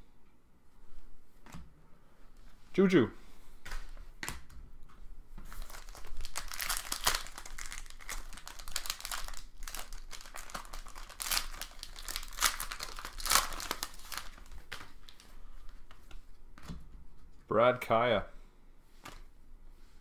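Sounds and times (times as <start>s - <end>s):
foil wrappers crinkling and tearing: 5.5s - 16.0s.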